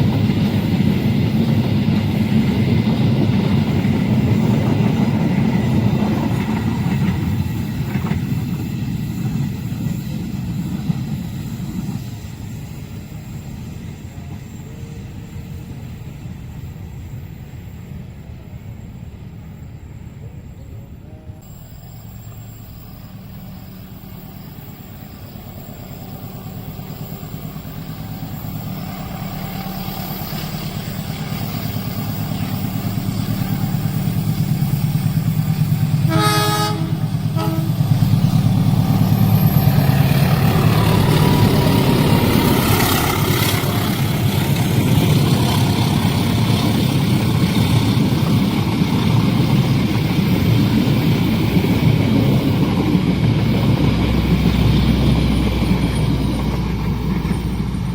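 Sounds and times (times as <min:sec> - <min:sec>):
train rumble and clatter: 0:00.0 - 0:57.9
locomotive horn blasts: 0:36.0 - 0:38.1.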